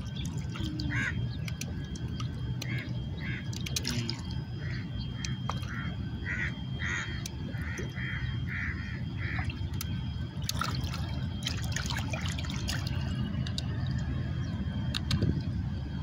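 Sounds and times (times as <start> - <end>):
water splashing and trickling: 0.0 - 4.6, 5.3 - 5.9, 9.2 - 14.2
steady low rumble: 0.0 - 16.0
scattered clicks: 1.4 - 2.9, 13.4 - 14.1, 14.9 - 15.3.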